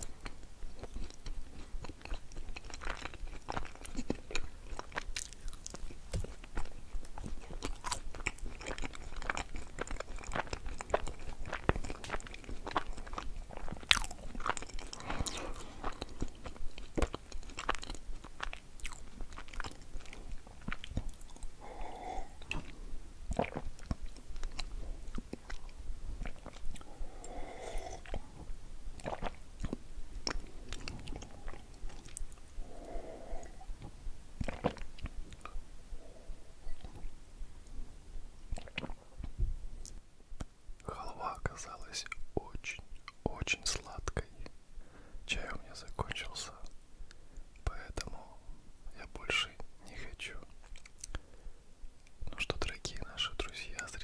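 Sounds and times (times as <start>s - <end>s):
wet mouth clicks: 0.0s - 28.3s, 29.0s - 36.1s, 38.5s - 40.5s, 49.0s - 51.2s
chewing with crunches: 0.0s - 37.8s, 38.5s - 40.5s, 49.2s - 51.3s.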